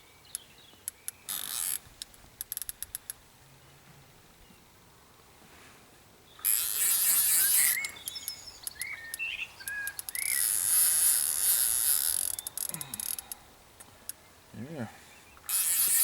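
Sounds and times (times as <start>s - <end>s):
small birds chirping: 0.0s - 1.8s, 6.2s - 16.0s.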